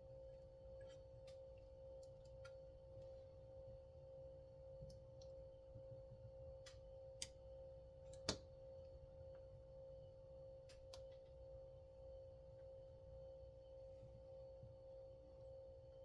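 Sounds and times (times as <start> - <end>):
faint steady hum: 0.0 - 16.0
light clicks of small parts: 6.6 - 7.4, 10.6 - 11.3.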